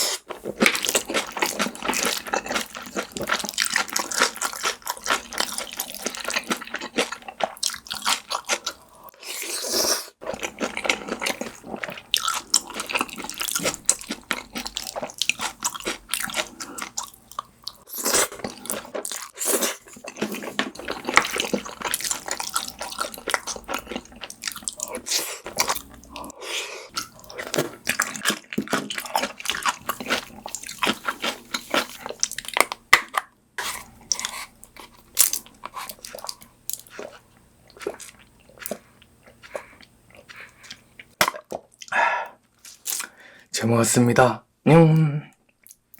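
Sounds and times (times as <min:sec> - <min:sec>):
wet chewing and lip-smacking: 0:00.4 - 0:09.6, 0:10.2 - 0:26.3, 0:26.9 - 0:43.2, 0:45.5 - 0:45.9
crunches and clicks while eating: 0:45.4 - 0:45.9.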